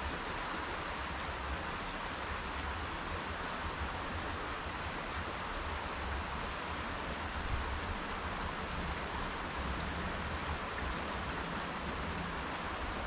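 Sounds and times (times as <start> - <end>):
creek water rushing: 0.0 - 13.0
wind rumble on microphone: 3.4 - 13.0.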